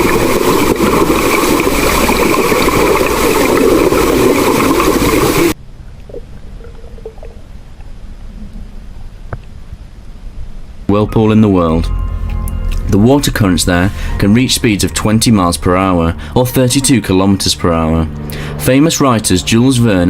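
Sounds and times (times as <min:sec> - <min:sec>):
rushing churning water: 0:00.0 - 0:05.6.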